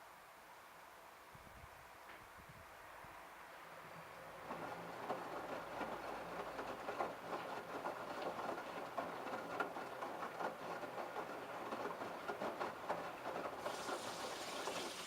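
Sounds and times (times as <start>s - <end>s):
laundry tumbling and splashing: 13.6s - 15.0s.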